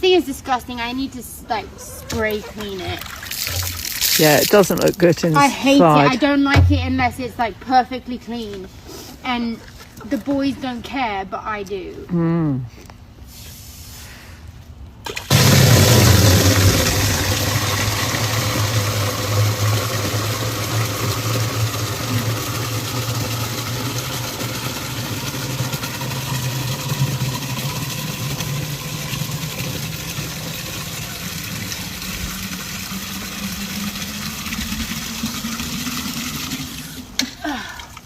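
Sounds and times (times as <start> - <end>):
water running into container: 1.8 - 5.5, 15.1 - 38.0.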